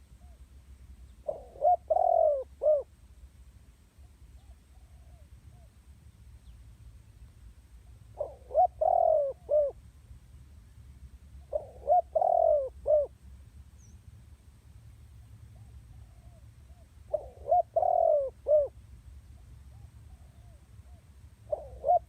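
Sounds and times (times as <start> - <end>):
dove cooing: 1.2 - 2.9, 8.1 - 9.8, 11.4 - 13.1, 15.5 - 18.8, 19.7 - 22.0.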